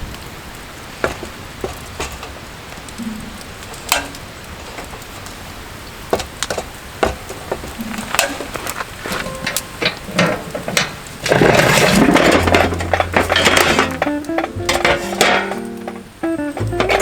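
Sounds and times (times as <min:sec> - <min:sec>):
clicks and knocks of handling: 0:06.1 - 0:17.0
rustling noise: 0:07.4 - 0:17.0.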